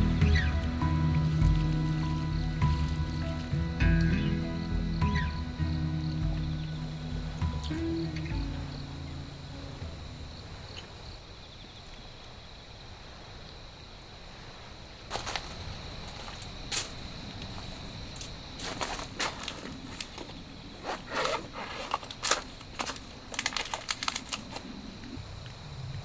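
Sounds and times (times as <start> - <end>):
steady low rumble: 0.0 - 11.0
faint high whine: 0.0 - 12.0
sharp clicks and rustles: 16.1 - 25.2.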